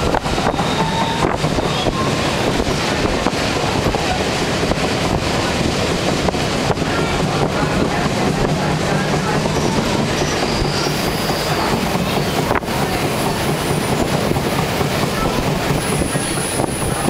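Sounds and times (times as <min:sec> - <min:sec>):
wheel squeals: 0:00.0 - 0:03.1, 0:09.2 - 0:17.0
train rumble and wind rush: 0:00.0 - 0:17.0.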